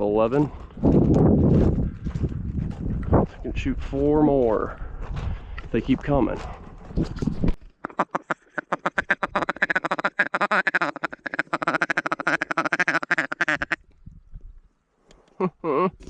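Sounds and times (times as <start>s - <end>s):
goose honks and clucks: 7.8s - 13.8s.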